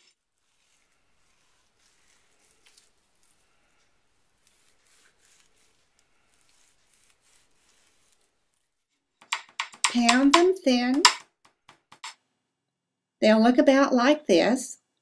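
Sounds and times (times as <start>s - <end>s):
soft rustles: 0.0s - 9.1s.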